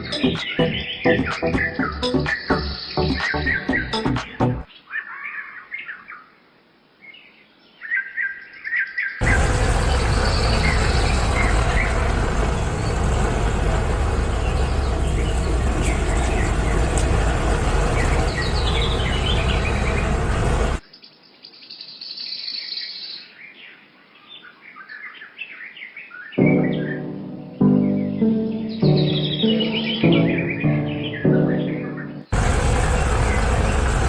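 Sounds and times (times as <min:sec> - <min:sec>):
small birds chirping and trilling: 0:00.0 - 0:06.4, 0:07.0 - 0:27.1, 0:27.8 - 0:32.3
loud rushing noise with rumble: 0:09.2 - 0:20.8, 0:28.2 - 0:34.0.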